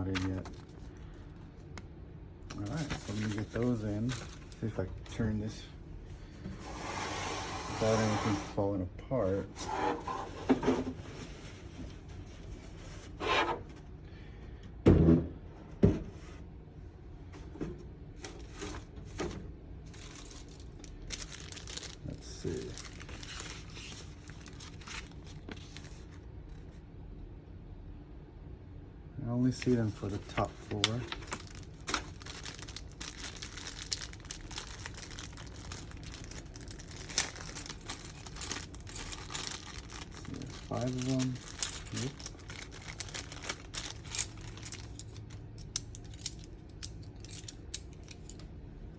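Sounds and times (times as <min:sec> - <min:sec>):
plastic packaging crinkling: 0:00.0 - 0:01.8, 0:02.4 - 0:05.2, 0:19.9 - 0:26.2, 0:29.6 - 0:48.4.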